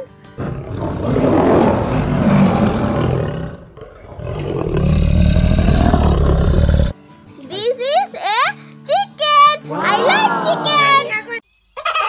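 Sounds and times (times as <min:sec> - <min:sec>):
lion roaring: 0:00.4 - 0:06.9.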